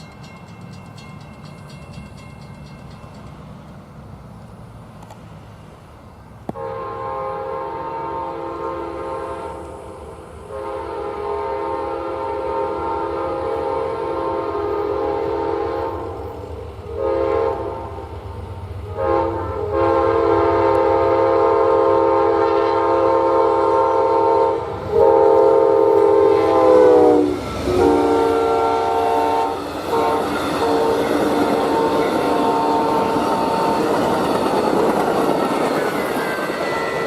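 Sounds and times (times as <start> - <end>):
low rumble of train: 0.0 - 37.0
locomotive air horn blasts: 6.5 - 9.7, 10.5 - 16.3, 16.9 - 18.0, 18.8 - 34.0.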